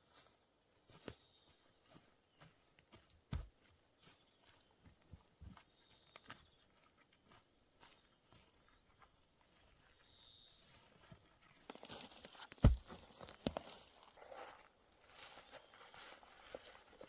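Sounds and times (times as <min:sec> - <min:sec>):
rustles and knocks: 0:12.4 - 0:13.6
heavy thump: 0:12.6 - 0:13.0.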